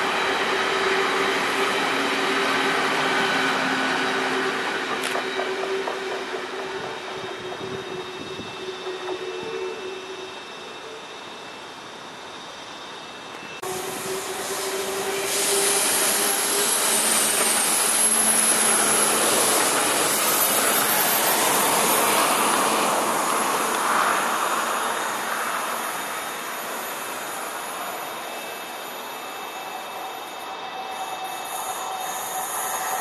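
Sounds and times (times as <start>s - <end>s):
train passing by rushing: 0.0s - 33.0s.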